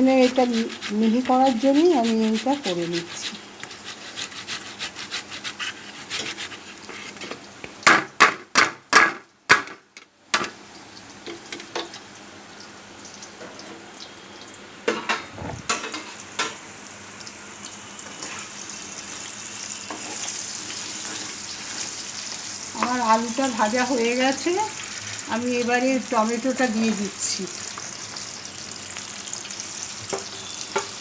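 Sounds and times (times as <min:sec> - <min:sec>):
stirring in a pan: 0:00.0 - 0:07.8, 0:19.9 - 0:23.2
potatoes sizzling in oil: 0:00.0 - 0:08.2, 0:10.2 - 0:14.9, 0:15.6 - 0:31.0.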